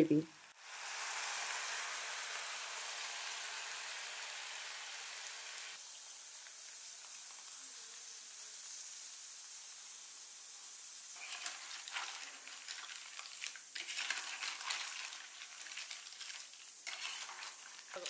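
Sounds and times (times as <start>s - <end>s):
oil and snails sizzling: 0.2s - 18.0s
gravy pouring into pot: 11.2s - 18.0s
metal spoon stirring: 11.2s - 18.0s
snail shells clattering: 11.2s - 18.0s.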